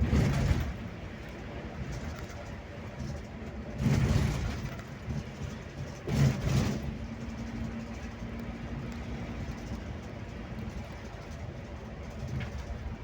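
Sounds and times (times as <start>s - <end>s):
bus engine and road noise: 0.0s - 13.0s.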